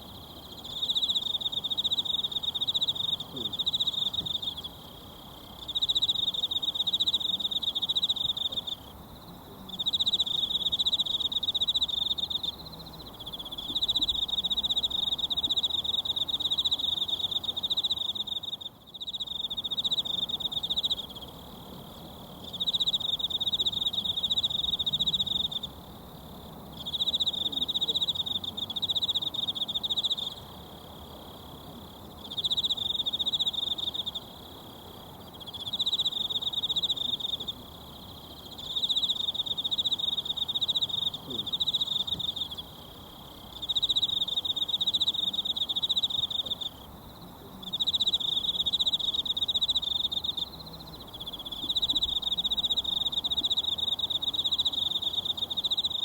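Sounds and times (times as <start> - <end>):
insect trilling: 26.8 - 56.0.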